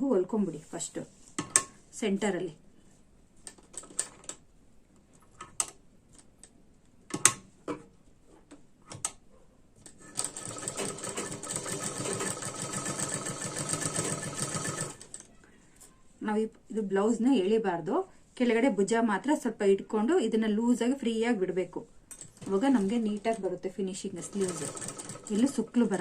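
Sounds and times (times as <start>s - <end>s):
sewing machine running: 10.0s - 15.2s, 24.2s - 25.6s.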